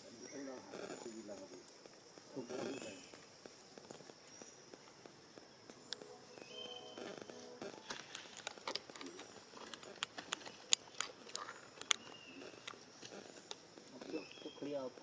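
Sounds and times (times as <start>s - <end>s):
sharp clicks and crunches: 7.0s - 14.2s.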